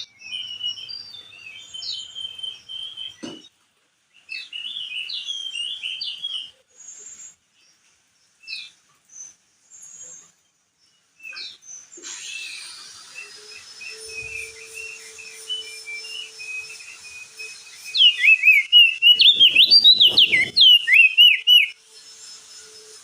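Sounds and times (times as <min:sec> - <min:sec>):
bird chirping song: 0:00.0 - 0:23.0.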